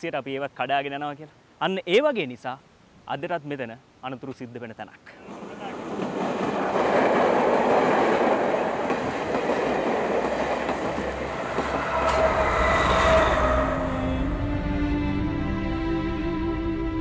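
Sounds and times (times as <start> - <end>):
train wheels rumbling on track: 5.2 - 14.6.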